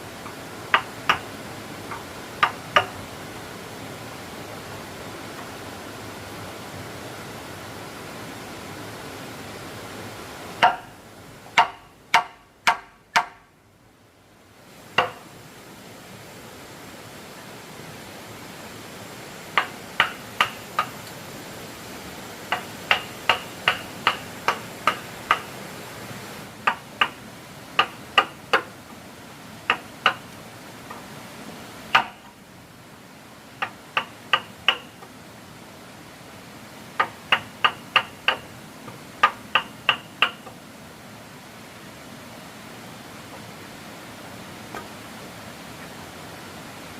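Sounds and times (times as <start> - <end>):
hammer blows on wood: 10.6 - 11.0, 11.6 - 13.5, 22.5 - 25.6, 31.9 - 32.3.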